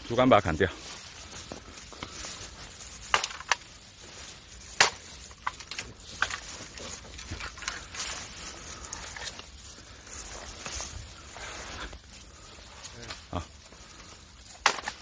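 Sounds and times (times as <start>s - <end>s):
bamboo pole being chopped: 4.7s - 6.4s, 14.5s - 15.0s.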